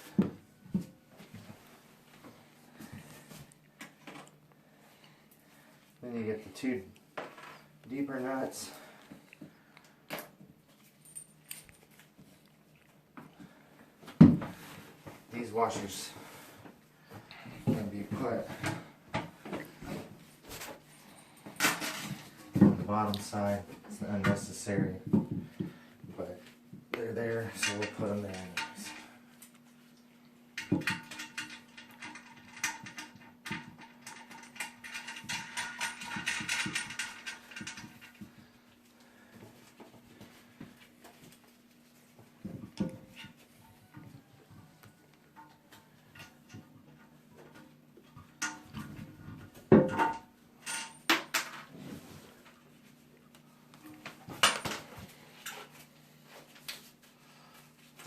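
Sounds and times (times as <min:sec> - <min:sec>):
faint steady hum: 0:00.0 - 0:58.0
metal washers and nuts clinking: 0:30.6 - 0:38.2, 0:49.8 - 0:51.7.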